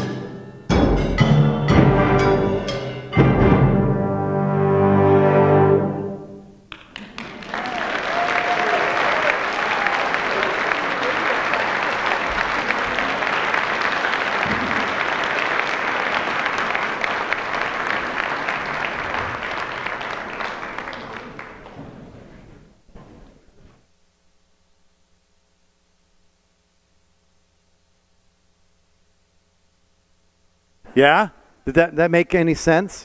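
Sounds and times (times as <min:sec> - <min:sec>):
audience applauding: 0:06.7 - 0:22.7.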